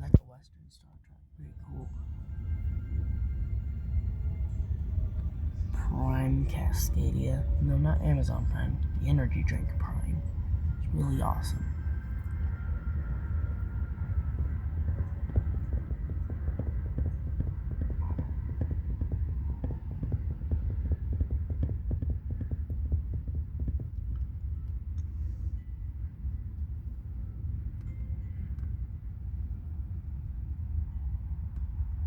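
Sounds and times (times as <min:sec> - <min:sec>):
rapid fluttering knocks: 0:11.6 - 0:25.5.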